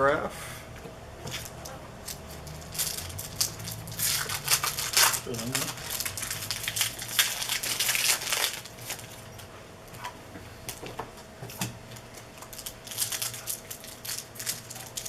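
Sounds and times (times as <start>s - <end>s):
trading cards rustling and clicking: 1.2s - 9.3s.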